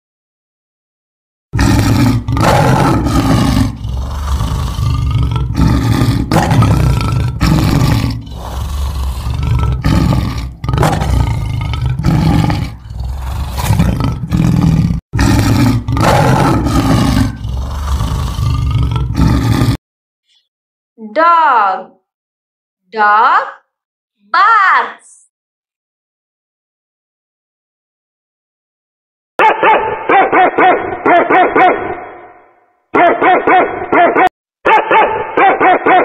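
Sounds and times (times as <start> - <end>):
lion roaring: 1.6 - 19.8.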